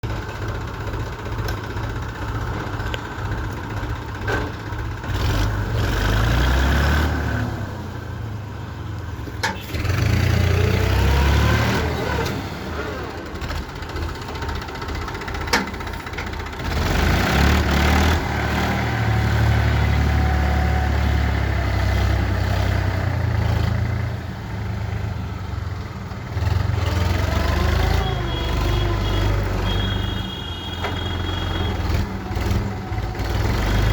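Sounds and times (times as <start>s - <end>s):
tractor engine straining: 0.0s - 7.9s, 9.0s - 33.9s.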